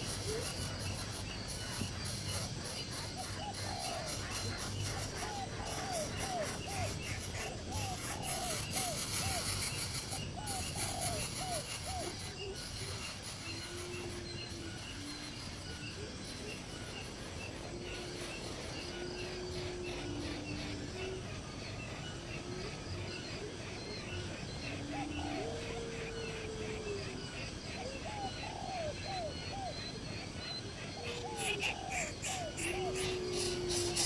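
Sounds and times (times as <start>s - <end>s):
bird chirping: 0.0s - 34.0s
insects: 0.0s - 34.0s.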